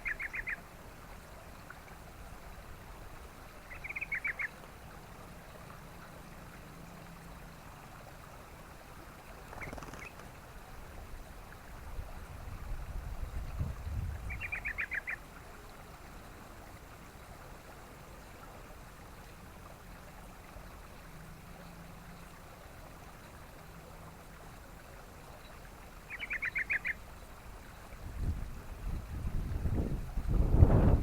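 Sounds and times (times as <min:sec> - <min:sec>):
bird chattering calls: 0:09.6 - 0:10.2
wind rumble on microphone: 0:11.7 - 0:14.7, 0:27.9 - 0:31.0.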